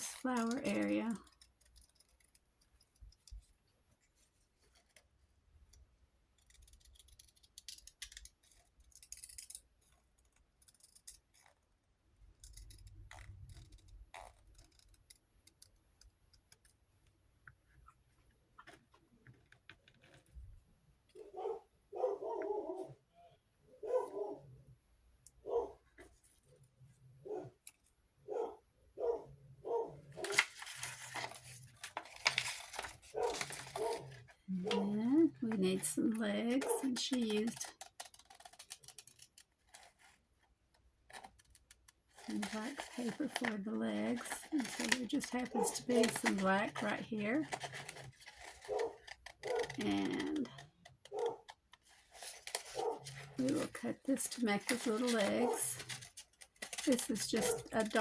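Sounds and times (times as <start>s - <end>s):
scissors cutting paper: 0.0s - 3.5s, 6.4s - 11.6s, 12.4s - 16.8s, 30.1s - 40.2s, 40.8s - 58.0s
dog barking: 21.2s - 23.0s, 23.8s - 24.4s, 25.4s - 25.8s, 27.2s - 27.6s, 28.3s - 30.3s, 33.1s - 34.9s, 45.5s - 45.8s, 48.7s - 49.8s, 51.1s - 51.5s, 52.8s - 53.2s.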